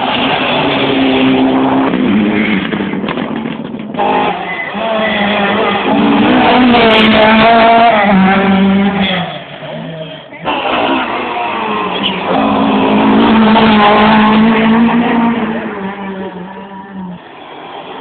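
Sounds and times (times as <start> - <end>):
rally car engine at high revs: 0.0 - 17.8.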